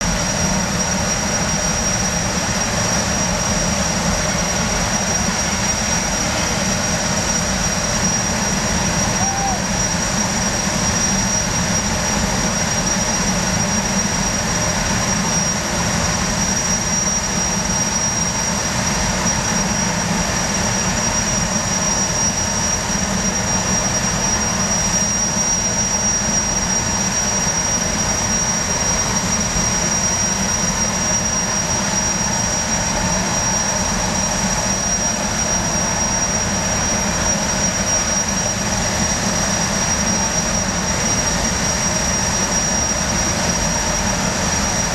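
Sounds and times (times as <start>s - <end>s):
gas turbines whining: 0.1s - 44.9s.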